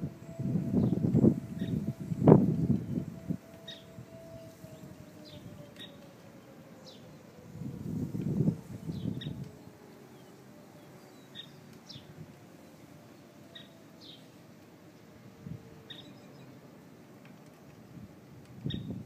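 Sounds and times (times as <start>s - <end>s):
bird chirping: 8.9s - 12.1s, 13.5s - 14.3s, 15.9s - 16.6s.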